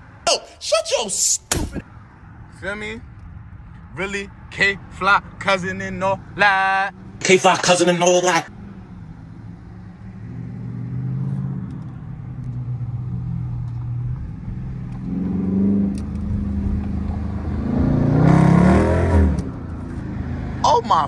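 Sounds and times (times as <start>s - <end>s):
car exhaust drone: 8.5s - 21.0s.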